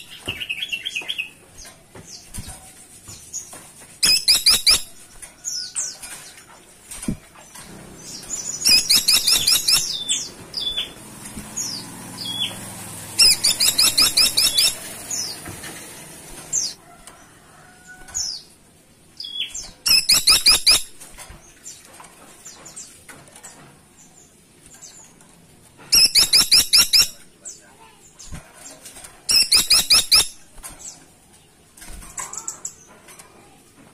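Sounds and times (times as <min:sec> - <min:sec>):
woodpecker rapid call bursts: 0:08.6 - 0:10.0, 0:13.2 - 0:14.9, 0:26.0 - 0:27.2.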